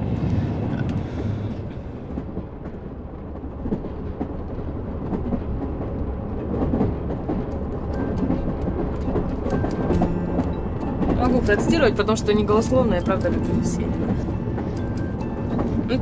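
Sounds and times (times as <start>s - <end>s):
passenger train rumbling: 0.0s - 16.0s
wheels and carriage knocking: 6.5s - 16.0s.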